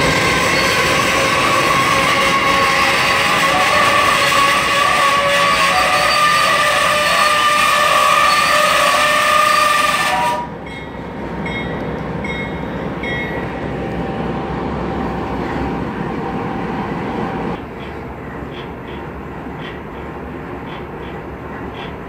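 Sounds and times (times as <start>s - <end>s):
wheels squealing: 0.0s - 9.7s
train wheels rumbling on rails: 0.0s - 22.0s.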